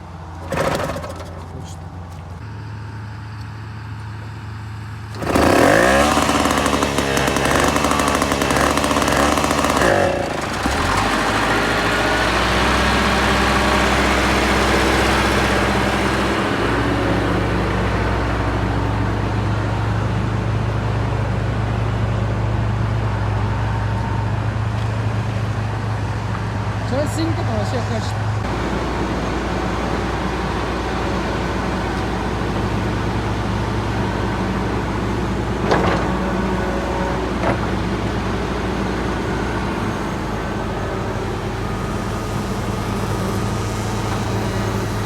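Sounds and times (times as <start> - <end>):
engine revving: 5.1 - 22.0, 26.8 - 45.0.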